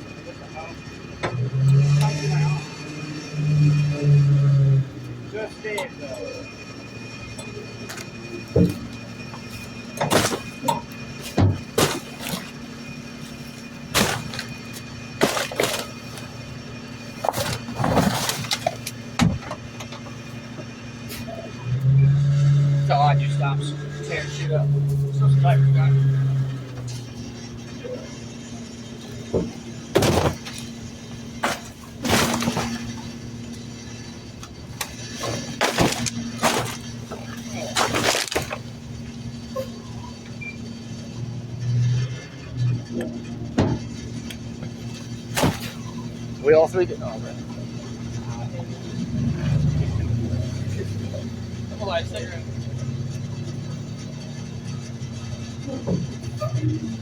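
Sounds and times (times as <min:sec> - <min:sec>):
refuse crashing and crunching: 0:00.0 - 0:57.0
truck engine hum: 0:00.0 - 0:57.0
garbage truck knocks and thuds: 0:07.4 - 0:20.7, 0:28.9 - 0:40.1, 0:43.4 - 0:46.3.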